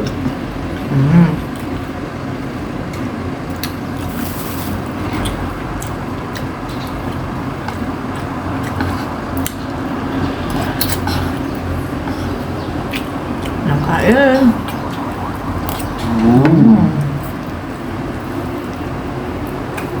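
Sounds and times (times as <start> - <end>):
steady low rumble: 5.2 - 19.5
chewing and tearing meat: 14.6 - 16.5.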